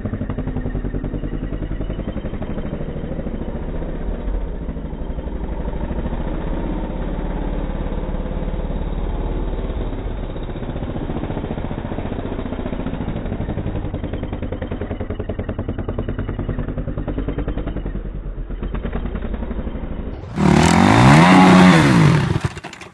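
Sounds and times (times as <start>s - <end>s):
dirt bike engine revving: 15.9s - 22.9s.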